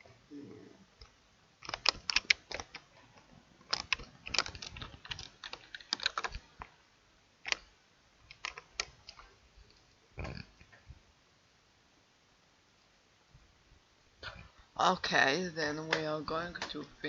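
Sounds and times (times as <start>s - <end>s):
computer keyboard typing: 1.6s - 6.7s, 7.4s - 7.7s, 8.3s - 9.3s.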